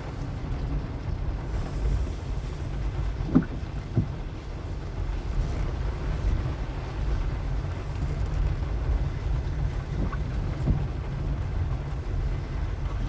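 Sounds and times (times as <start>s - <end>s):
car engine and tyres rumbling: 0.0s - 13.0s
faint knocks and clicks: 3.2s - 4.2s.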